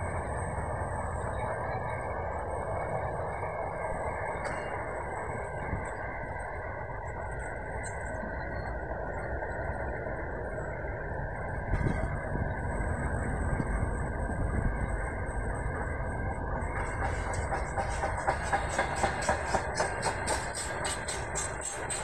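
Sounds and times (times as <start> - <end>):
train wheels rumbling on rail: 10.4 - 22.0
wheels clickety-clack: 16.6 - 22.0.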